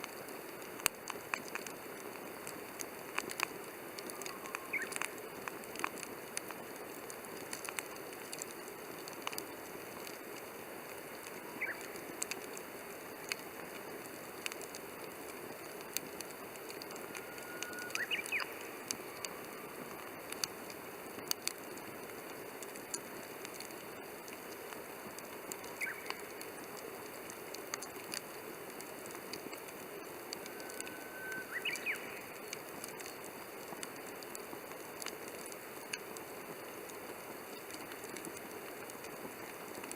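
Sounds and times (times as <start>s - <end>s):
wood fire crackling: 0.0s - 39.9s
faint whistles: 4.0s - 5.0s, 16.8s - 20.2s, 30.4s - 32.5s.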